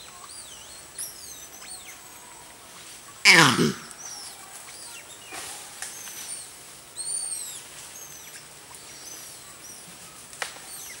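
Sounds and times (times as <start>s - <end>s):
birds chirping: 3.3s - 9.9s.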